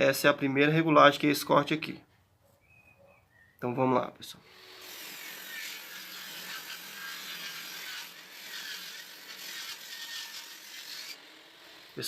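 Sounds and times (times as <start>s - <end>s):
circular saw cutting wood: 4.4s - 12.0s.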